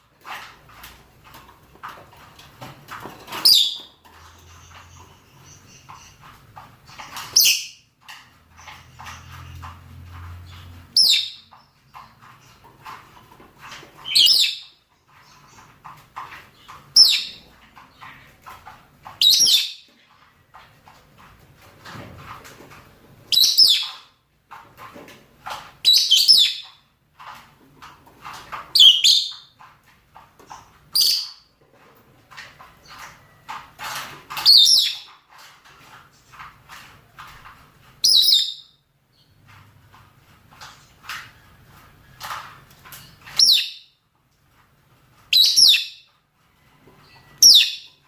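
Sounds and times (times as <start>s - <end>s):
birds chattering: 3.3s - 7.9s.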